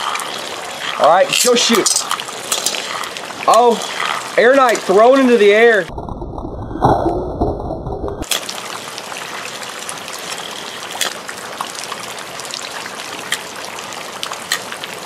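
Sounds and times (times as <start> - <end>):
rain falling: 0.0 - 15.0
muffled low rumble: 5.9 - 8.2.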